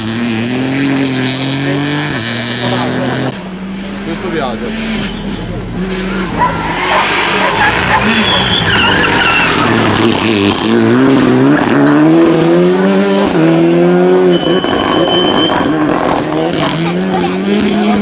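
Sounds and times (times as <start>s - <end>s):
car engine accelerating: 0.0s - 18.0s
tyres squealing: 4.7s - 10.7s.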